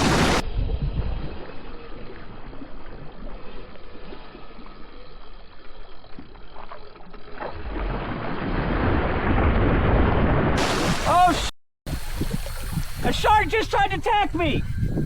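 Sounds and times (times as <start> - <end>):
rushing water: 0.0 - 0.4, 7.5 - 14.1
water splashing around a kayak: 0.0 - 14.2.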